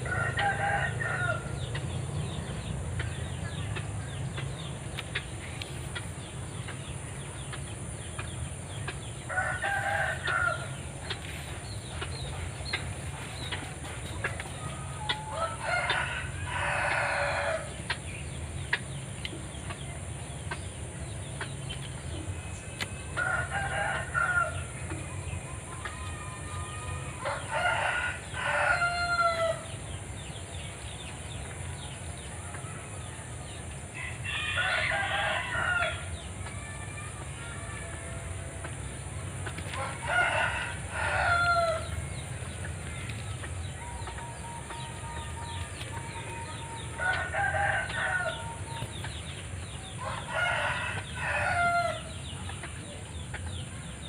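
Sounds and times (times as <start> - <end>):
rooster crowing: 0.0 - 1.6, 9.3 - 10.8, 14.8 - 17.7, 23.2 - 24.7, 26.0 - 29.7, 34.0 - 38.6, 39.8 - 42.2, 43.7 - 48.8, 49.8 - 52.2.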